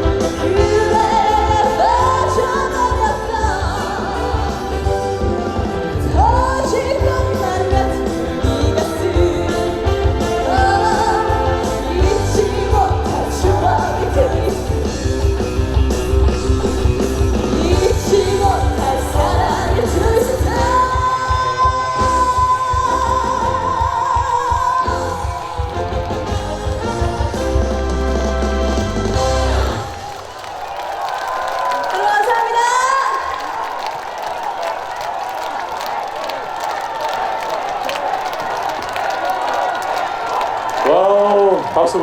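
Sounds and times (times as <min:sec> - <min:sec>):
full band playing: 0:00.0 - 0:30.7
woman singing: 0:00.2 - 0:05.3, 0:06.0 - 0:14.9, 0:17.5 - 0:25.4.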